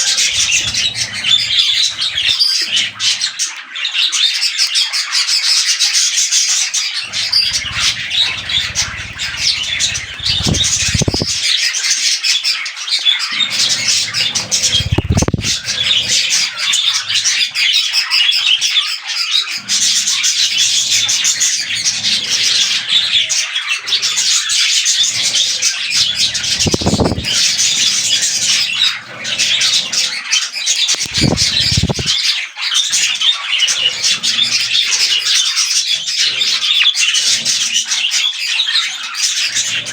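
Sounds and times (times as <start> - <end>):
budgerigars chattering and chirping: 0.0 - 39.9
low thumps: 7.5 - 11.4, 14.7 - 15.6.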